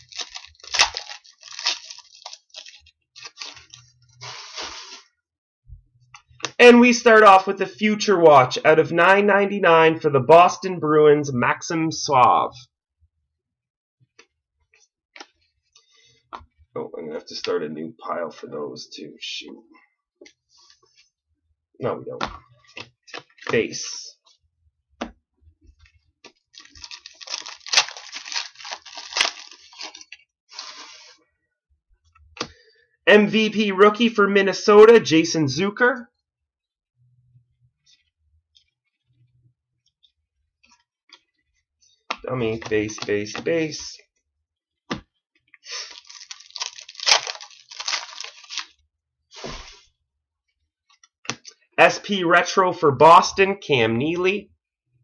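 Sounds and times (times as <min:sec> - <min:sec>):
wrapper tearing and crinkling: 0:00.0 - 0:03.8, 0:26.5 - 0:31.1, 0:45.7 - 0:48.8
wrapper rustle: 0:00.0 - 0:04.0, 0:26.5 - 0:31.1, 0:45.7 - 0:48.8.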